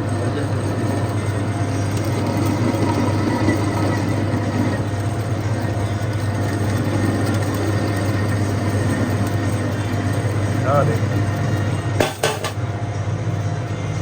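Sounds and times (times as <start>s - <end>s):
machinery humming: 0.0s - 14.0s.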